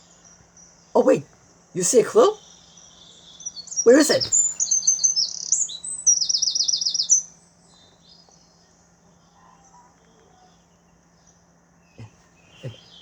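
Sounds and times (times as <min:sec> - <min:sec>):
bird trill: 0:00.0 - 0:08.7
faint low hum: 0:00.0 - 0:13.0
songbirds chirping: 0:00.0 - 0:13.0.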